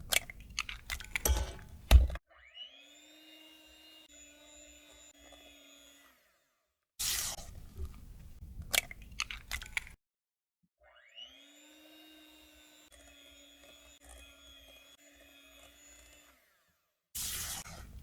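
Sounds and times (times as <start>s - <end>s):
electric hand mixer whine: 10.8s - 16.8s.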